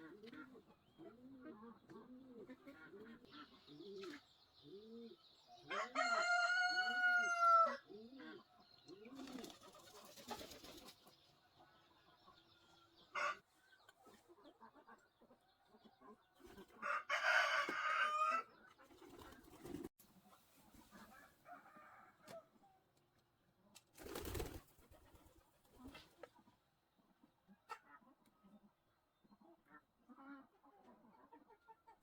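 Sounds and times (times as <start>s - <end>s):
hens clucking: 0.0s - 4.2s, 25.1s - 26.6s
rooster crowing: 5.7s - 7.8s, 16.8s - 18.5s.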